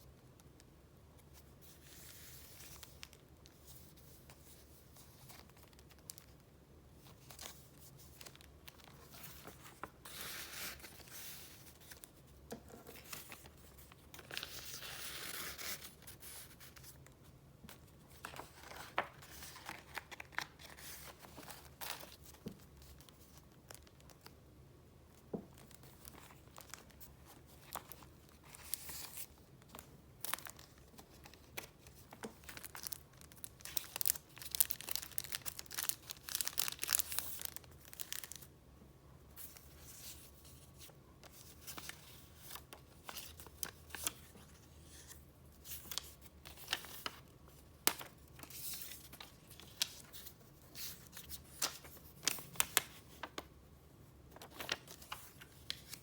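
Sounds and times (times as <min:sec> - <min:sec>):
paper pages rustling and flipping: 0:07.0 - 0:17.0, 0:17.7 - 0:24.3, 0:25.4 - 0:38.5, 0:39.4 - 0:53.5, 0:54.3 - 0:56.0.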